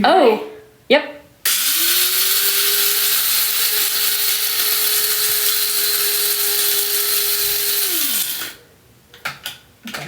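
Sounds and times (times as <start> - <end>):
coffee grinder grinding: 1.5 - 8.6
grinder motor winding down: 1.5 - 8.6.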